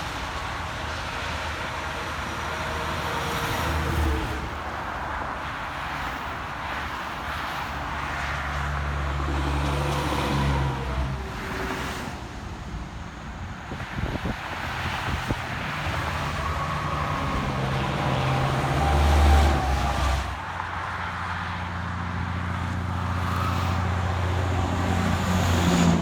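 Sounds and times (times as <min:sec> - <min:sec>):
truck engine drone: 0:08.7 - 0:26.0.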